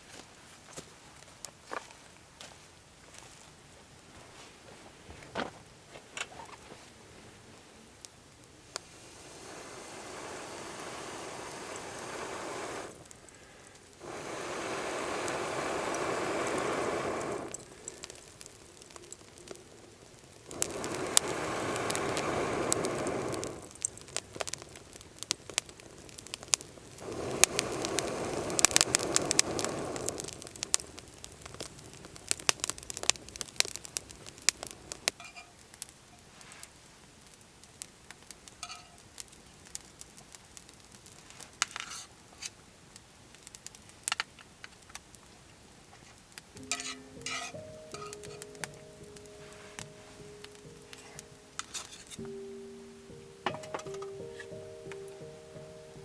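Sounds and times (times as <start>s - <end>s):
wood fire crackling and popping: 0.1s - 56.0s
hissing noise: 8.6s - 24.5s, 26.2s - 31.1s, 46.6s - 56.0s.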